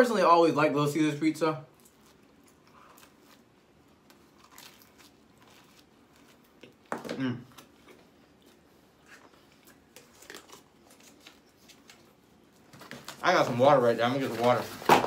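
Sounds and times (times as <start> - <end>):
quiet chewing: 1.7 - 12.7
paper and cardboard crinkling: 9.9 - 15.0.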